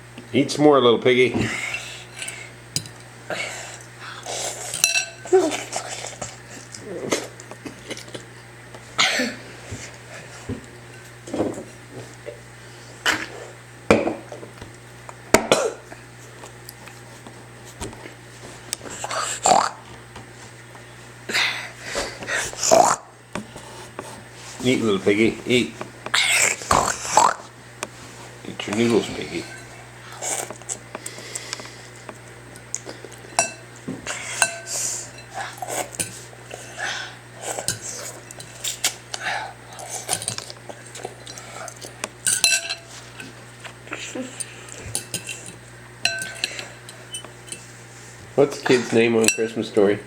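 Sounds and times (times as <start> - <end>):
utensil clinking against bowl: 4.8 - 5.3, 33.2 - 33.6, 34.4 - 35.3, 42.2 - 43.3, 44.4 - 47.7.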